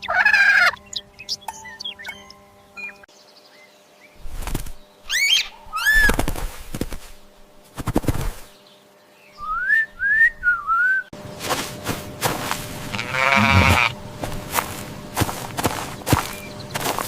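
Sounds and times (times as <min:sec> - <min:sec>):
farm animal bleating: 0:00.0 - 0:01.3, 0:12.8 - 0:14.0
short rising whistles: 0:09.4 - 0:11.1.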